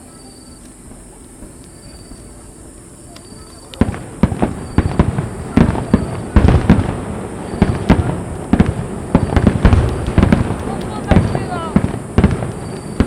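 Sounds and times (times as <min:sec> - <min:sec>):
firework bangs: 0:03.3 - 0:13.0
echoing booms: 0:03.8 - 0:13.0.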